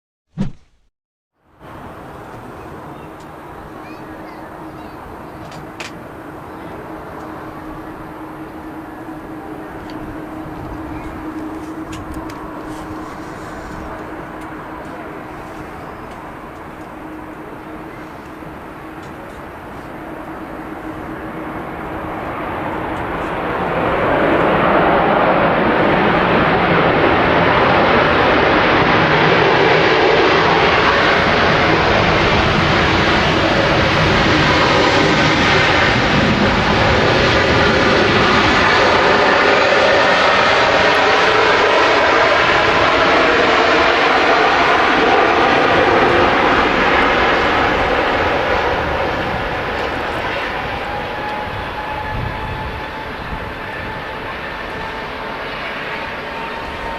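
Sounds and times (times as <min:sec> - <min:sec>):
jet engines of landing plane: 0:01.6 - 0:56.9.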